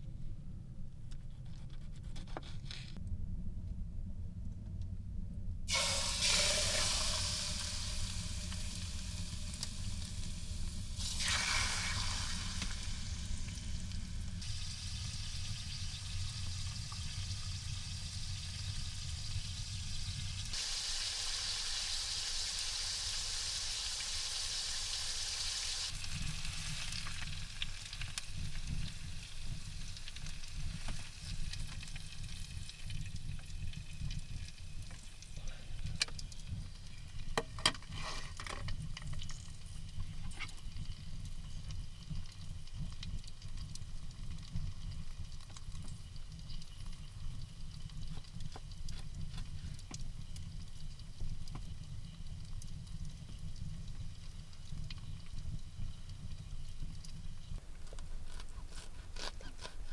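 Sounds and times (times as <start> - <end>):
food sizzling in a pan: 5.7 - 35.9.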